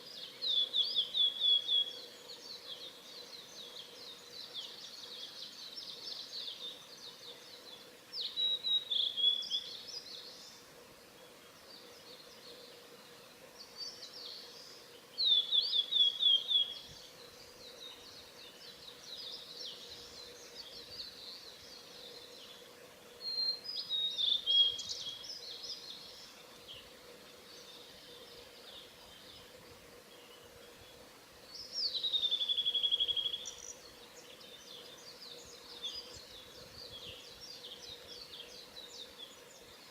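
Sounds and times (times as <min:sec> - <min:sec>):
bird song whistles and trills: 0:00.0 - 0:10.6, 0:13.6 - 0:22.6, 0:23.2 - 0:26.9, 0:31.5 - 0:39.9.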